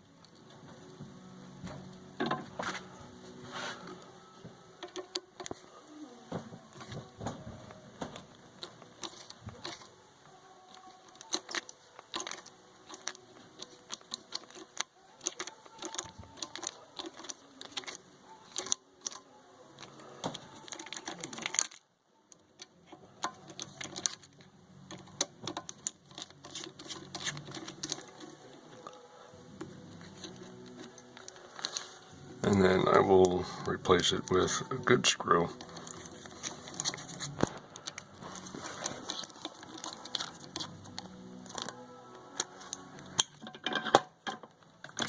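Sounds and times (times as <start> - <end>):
screwdriver clicking and scraping metal: 4.8 - 5.7, 8.1 - 10.0, 10.6 - 21.8, 22.6 - 32.0, 35.5 - 45.0.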